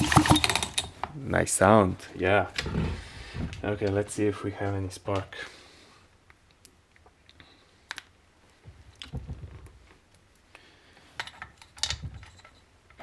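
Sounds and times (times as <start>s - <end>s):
handling noises: 0.0s - 1.1s.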